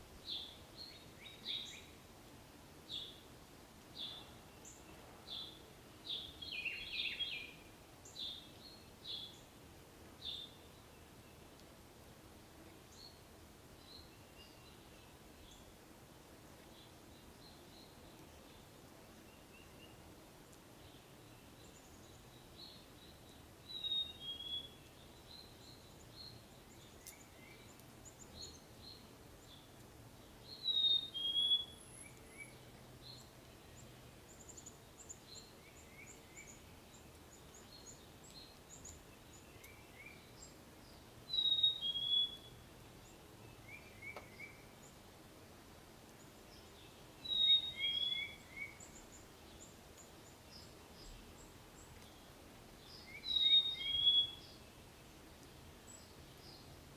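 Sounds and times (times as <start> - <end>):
faint bird chirps: 4.0 - 9.5, 20.8 - 29.8, 30.4 - 45.0, 46.2 - 55.1
songbird two-note whistled song: 30.7 - 32.6, 53.1 - 54.6.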